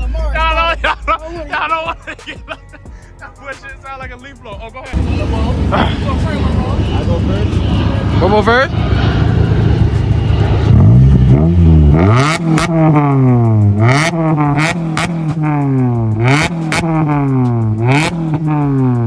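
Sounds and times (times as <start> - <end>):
car engine revving: 5.0 - 19.0.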